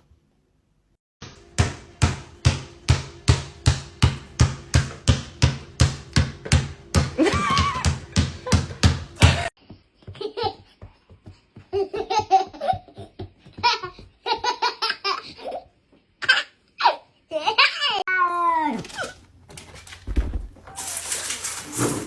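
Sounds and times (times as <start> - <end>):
person giggling: 7.1 - 9.5.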